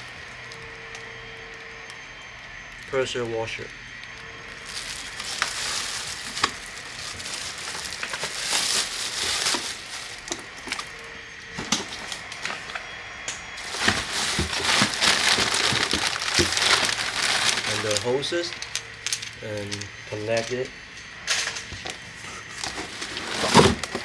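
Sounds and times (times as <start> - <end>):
packaging rustling and crinkling: 4.5 - 12.8, 13.6 - 20.5, 21.8 - 24.0.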